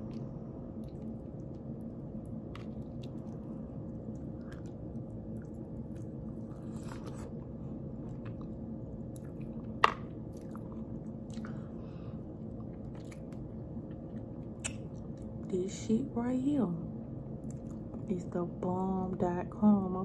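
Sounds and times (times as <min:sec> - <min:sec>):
person chewing meat: 0:00.0 - 0:15.4
low hum: 0:00.0 - 0:20.0.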